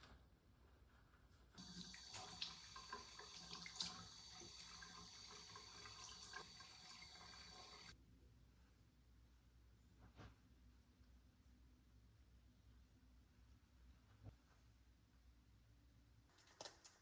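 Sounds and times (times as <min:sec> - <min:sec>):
water running from a tap: 0:01.6 - 0:08.0.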